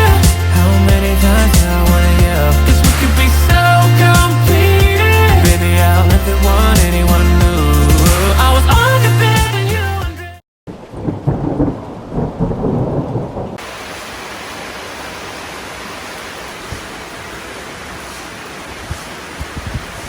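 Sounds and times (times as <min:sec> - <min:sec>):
heavy rain hissing: 0:00.0 - 0:09.7, 0:13.5 - 0:20.0
thunder rumbling: 0:01.7 - 0:05.4, 0:10.7 - 0:13.8.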